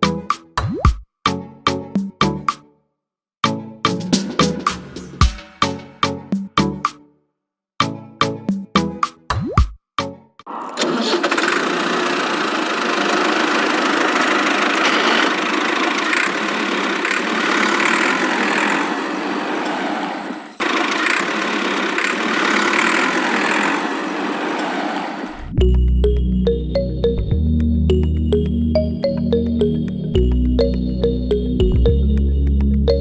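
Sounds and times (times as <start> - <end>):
small motor whining: 10.6 - 25.5.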